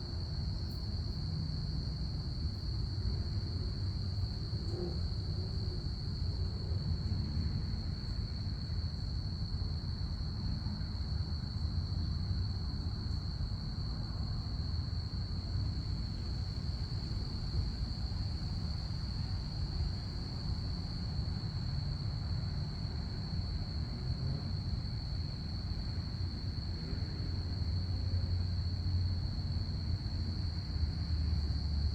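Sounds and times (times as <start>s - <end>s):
crickets trilling: 0.2s - 31.9s.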